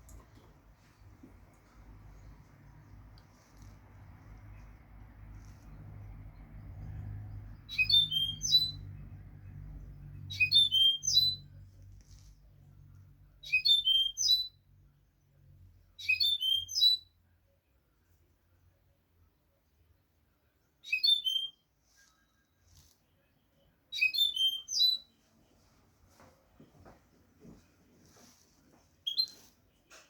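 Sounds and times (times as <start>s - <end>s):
faint low rumble: 0.0s - 7.8s
bird twittering song: 5.4s - 9.0s, 9.9s - 11.5s, 13.4s - 14.6s, 16.0s - 17.1s, 29.0s - 29.5s.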